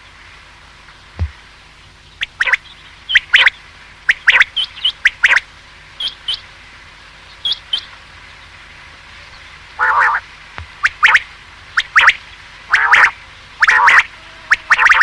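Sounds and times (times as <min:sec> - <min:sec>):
quail calling: 0:02.2 - 0:06.5, 0:09.8 - 0:15.0.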